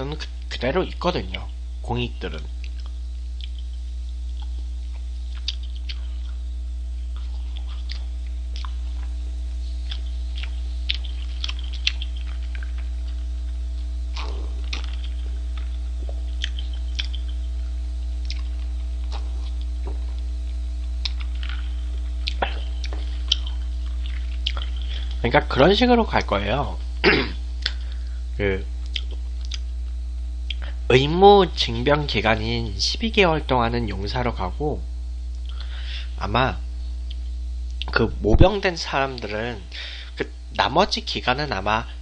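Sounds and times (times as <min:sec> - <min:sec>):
low electrical hum: 0:00.0 - 0:42.0
chewing with mouth clicks: 0:02.6 - 0:06.5, 0:07.1 - 0:25.2, 0:27.6 - 0:28.0, 0:28.8 - 0:29.8, 0:30.4 - 0:30.8
person swallowing drink: 0:14.1 - 0:17.5, 0:18.2 - 0:20.3, 0:21.0 - 0:25.1.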